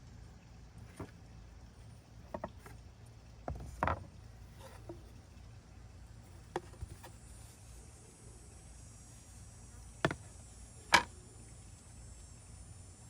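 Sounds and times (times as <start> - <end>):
low steady hum: 0.0 - 13.0
wood pieces knocking on workbench: 2.3 - 2.8, 3.5 - 5.0, 6.5 - 7.1, 10.0 - 10.2.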